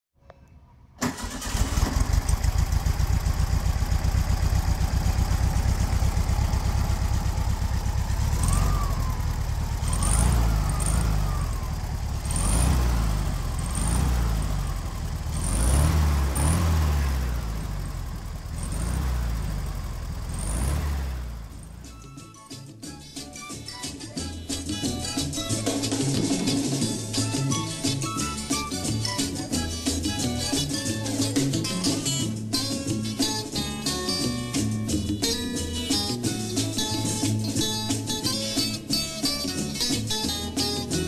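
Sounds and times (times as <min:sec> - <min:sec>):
car engine starting and revving: 0:01.0 - 0:22.2.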